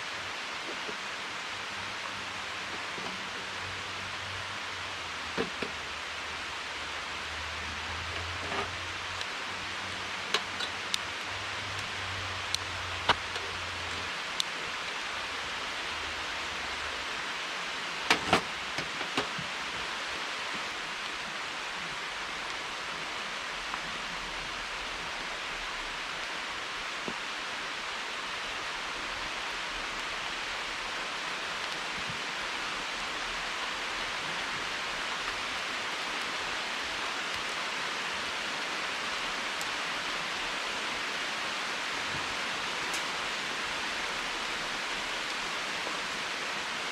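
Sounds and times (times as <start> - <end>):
heavy rain hissing: 0.0 - 46.9
sharp taps and drips: 12.5 - 14.6.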